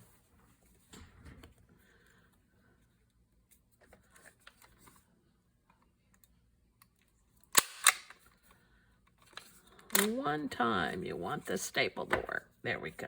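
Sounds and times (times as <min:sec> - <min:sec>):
stapler snapping down: 0:07.5 - 0:08.2.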